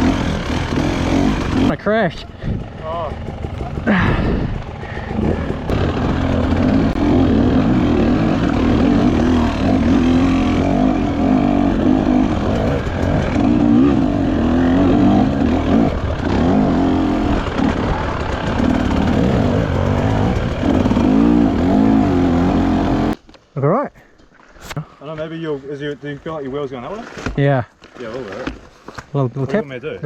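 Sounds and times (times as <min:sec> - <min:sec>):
dirt bike engine idling: 0:00.0 - 0:23.2.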